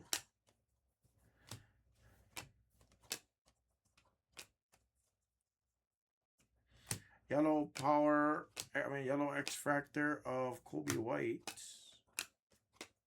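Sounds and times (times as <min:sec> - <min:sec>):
cards clicking against stack: 0:00.0 - 0:00.4, 0:01.4 - 0:04.9, 0:06.7 - 0:13.0
cards rustling: 0:01.3 - 0:04.9, 0:06.7 - 0:13.0.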